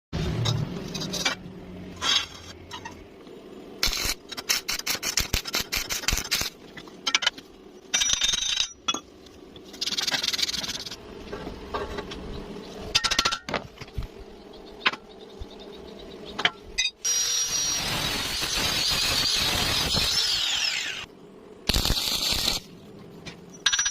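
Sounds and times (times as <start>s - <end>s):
power tool whining: 17.0s - 21.1s
metal tools clinking on metal: 23.5s - 23.9s.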